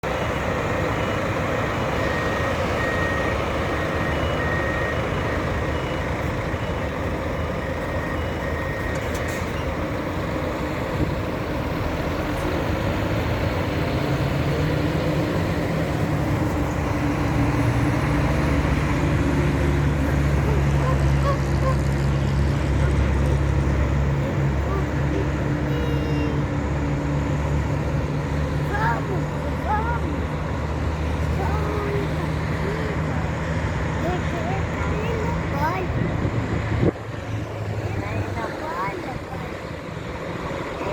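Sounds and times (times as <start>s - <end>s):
diesel bus engine running: 0.0s - 40.9s
reversing alarm beeping: 0.1s - 11.4s, 23.5s - 32.9s.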